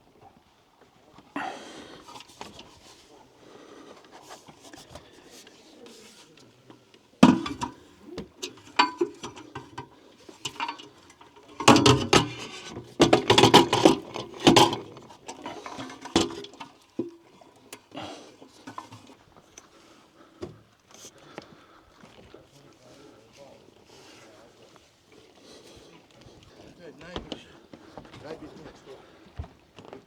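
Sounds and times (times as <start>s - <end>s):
gear knocking and clattering: 10.5s - 15.0s.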